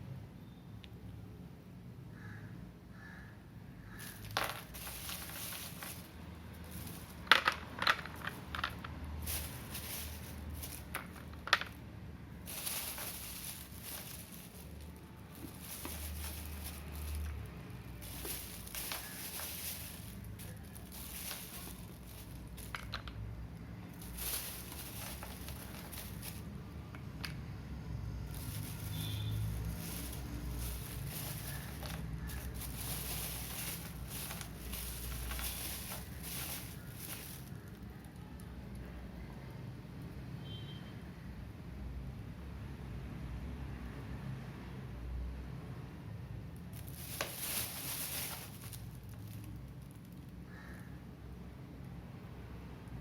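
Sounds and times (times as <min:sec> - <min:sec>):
clay crackling and crumbling: 0:03.8 - 0:27.5, 0:28.1 - 0:38.8, 0:46.7 - 0:50.8
fine hissing crackle: 0:08.2 - 0:11.6, 0:12.3 - 0:22.9, 0:23.9 - 0:26.6, 0:28.2 - 0:37.9, 0:46.7 - 0:49.8.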